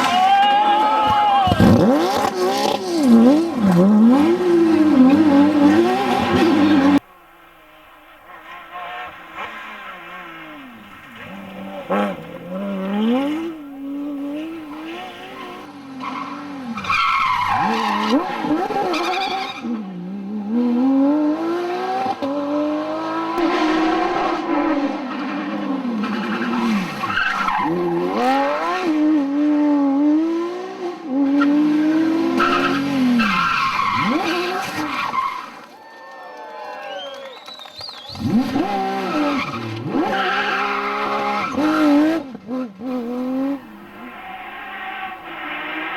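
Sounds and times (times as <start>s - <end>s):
rally car engine revving: 0.0s - 35.6s, 38.1s - 45.9s.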